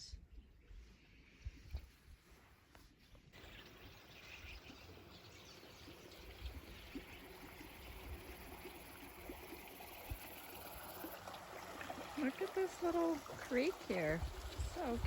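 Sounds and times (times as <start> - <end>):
faint birds chirping: 3.0 - 15.0
creek flowing: 3.4 - 15.0.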